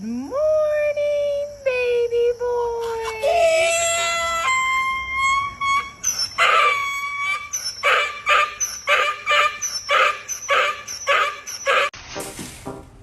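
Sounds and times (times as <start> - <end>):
dog howling: 3.2 - 11.9
dog barking: 7.9 - 11.9.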